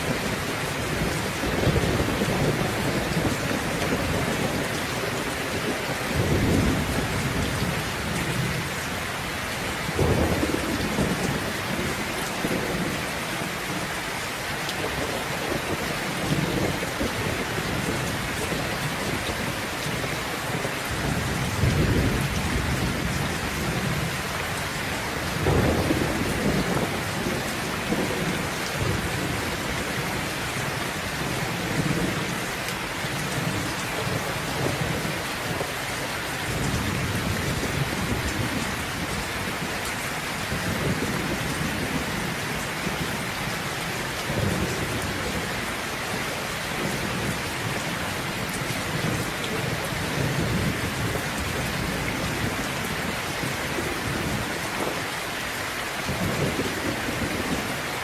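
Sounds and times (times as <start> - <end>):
thunder rumbling: 0.0 - 9.0, 9.6 - 13.8, 14.8 - 35.7, 36.5 - 39.8
heavy rain hissing: 0.0 - 58.0.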